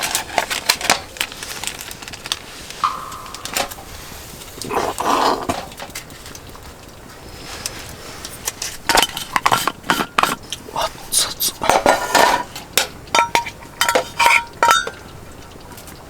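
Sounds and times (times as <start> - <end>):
utensils clinking against dishes: 8.5 - 15.1.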